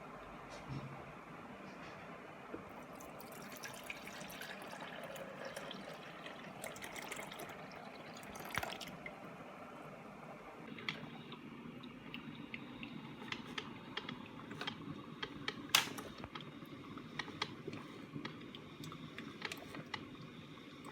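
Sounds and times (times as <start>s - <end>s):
water drips: 2.7s - 9.2s, 10.7s - 15.6s, 18.2s - 20.0s
water running from tap: 2.7s - 9.2s.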